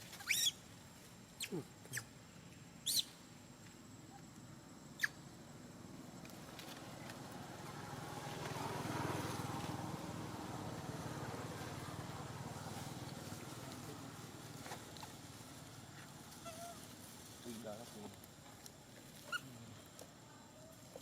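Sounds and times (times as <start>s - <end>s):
vehicle engine humming past: 5.8s - 16.3s.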